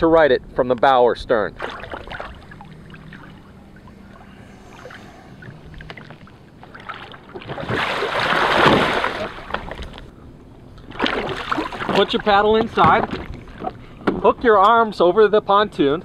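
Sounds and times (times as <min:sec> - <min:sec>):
water lapping: 0:01.5 - 0:10.1, 0:10.8 - 0:14.0
loud rush of splashing water: 0:06.9 - 0:09.6.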